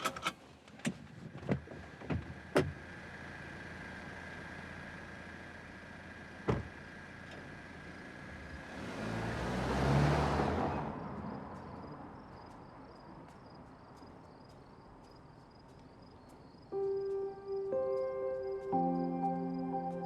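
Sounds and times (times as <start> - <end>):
car driving away: 1.6 - 20.0
faint cricket chirps: 3.0 - 8.8, 9.9 - 20.0.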